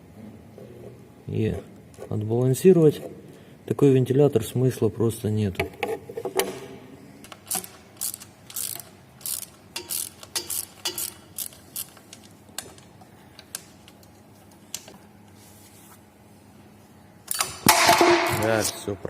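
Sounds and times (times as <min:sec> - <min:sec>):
faint steady hum: 0:00.0 - 0:19.0
short mechanical clicks: 0:07.2 - 0:12.3.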